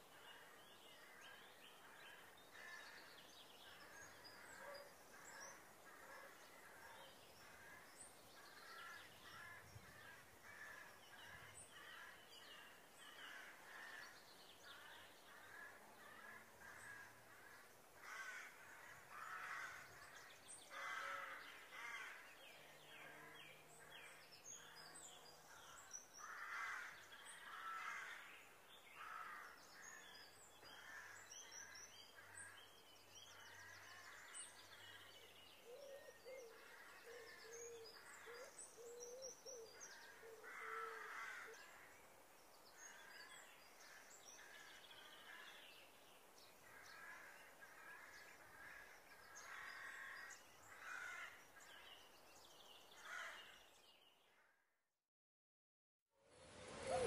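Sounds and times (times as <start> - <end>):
faint bird calls: 29.0 - 42.1, 56.6 - 57.0.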